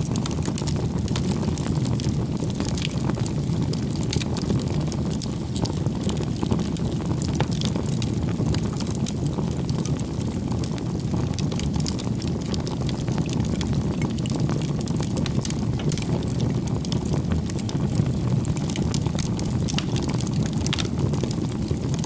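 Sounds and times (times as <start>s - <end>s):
burning wood crackling: 0.0s - 22.0s
rumble of flames: 0.0s - 22.0s.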